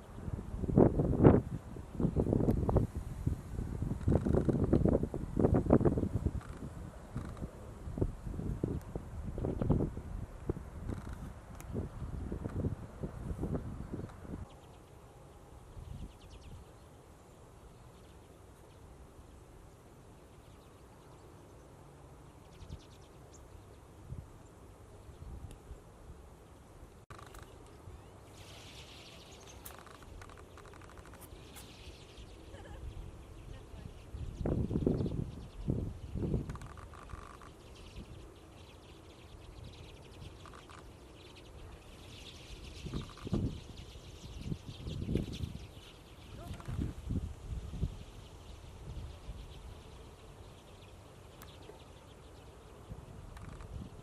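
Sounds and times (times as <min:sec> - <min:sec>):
birds chattering calls: 0:26.4 - 0:54.0.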